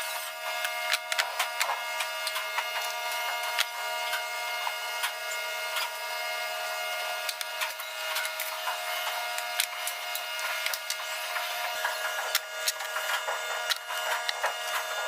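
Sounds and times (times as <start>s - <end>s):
woodworking machine whining: 0.0s - 15.0s.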